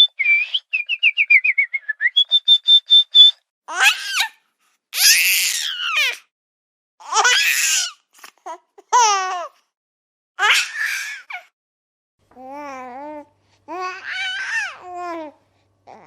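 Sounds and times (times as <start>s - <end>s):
high whistle-like tone: 0.0s - 3.4s.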